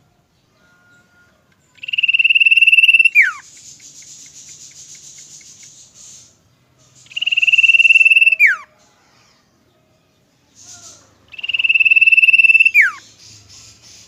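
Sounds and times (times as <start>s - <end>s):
bird singing: 0.0s - 14.0s.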